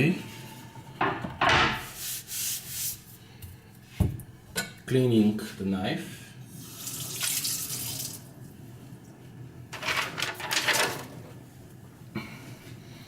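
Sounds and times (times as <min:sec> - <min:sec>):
water running from a tap: 0:06.6 - 0:08.3.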